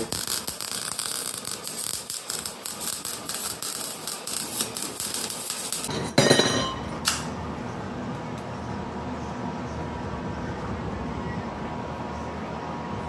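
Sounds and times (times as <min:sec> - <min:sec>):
welder crackling: 0:00.0 - 0:05.9.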